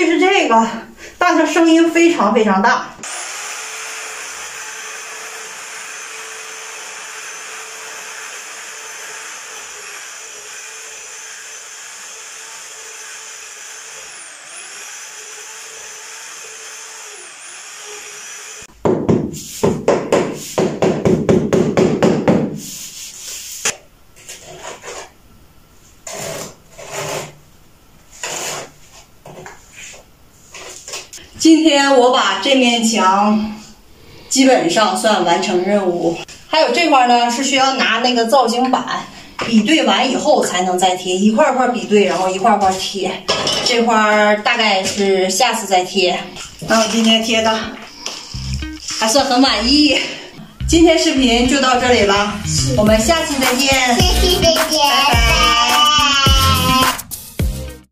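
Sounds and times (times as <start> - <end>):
electric mixer stirring mortar: 3.0 - 18.7, 51.0 - 57.0
knocks: 18.8 - 22.6
scraping strokes: 22.6 - 25.2, 28.1 - 30.9.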